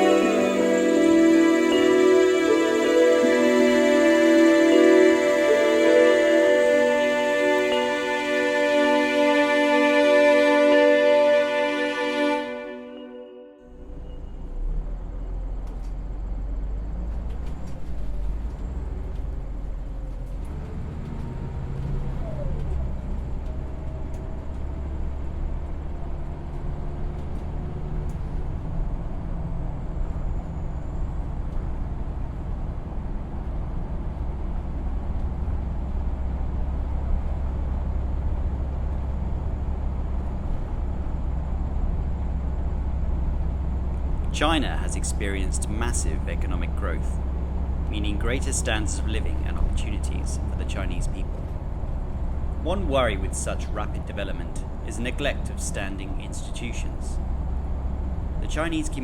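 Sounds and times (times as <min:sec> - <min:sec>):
road traffic rumble: 0:13.7 - 0:59.0.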